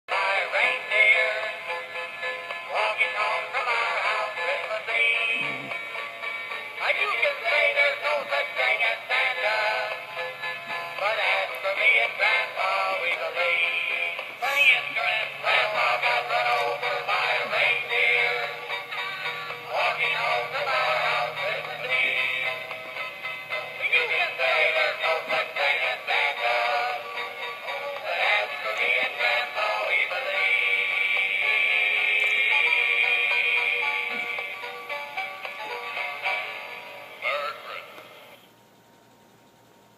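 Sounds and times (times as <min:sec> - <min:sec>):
christmas song playing: 0:00.1 - 0:38.5
person singing: 0:02.7 - 0:05.8, 0:11.0 - 0:18.8.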